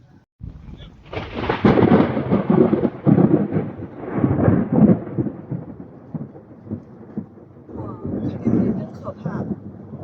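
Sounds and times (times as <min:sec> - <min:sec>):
thunder rumbling: 0:00.4 - 0:10.0.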